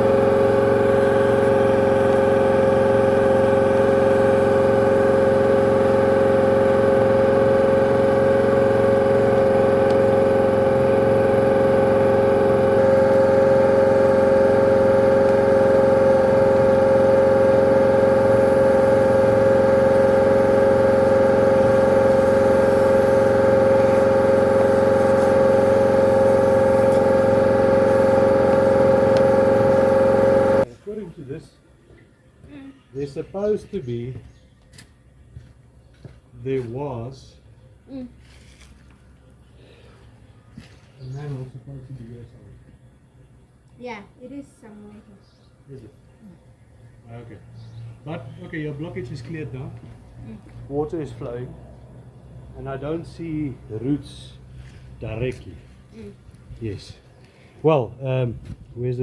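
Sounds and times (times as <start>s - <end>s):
drain jetting machine running: 0.0s - 31.1s, 47.1s - 58.3s.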